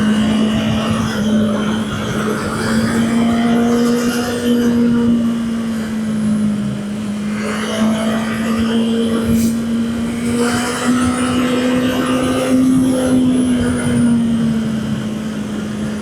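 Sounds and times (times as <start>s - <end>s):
wind noise: 0.0s - 5.5s.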